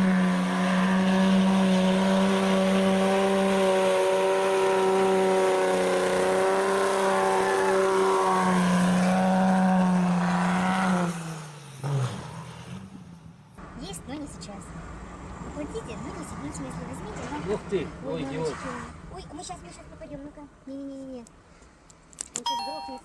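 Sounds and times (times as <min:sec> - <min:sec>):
vehicle engine revving: 0:00.0 - 0:13.7.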